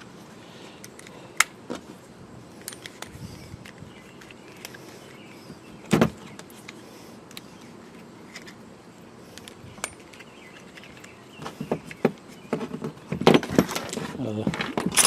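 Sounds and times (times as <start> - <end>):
small metal parts clinking: 2.6 - 5.2, 9.4 - 11.2, 13.3 - 15.0.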